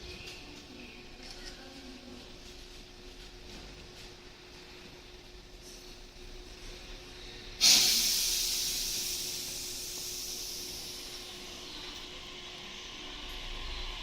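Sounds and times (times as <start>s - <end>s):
train compressed air hiss: 7.6s - 11.5s.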